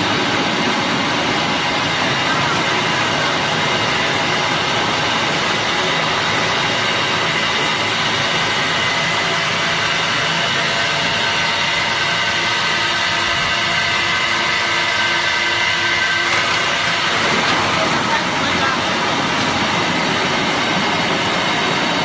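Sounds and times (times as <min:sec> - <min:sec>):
grinder machine grinding: 0:00.0 - 0:21.7.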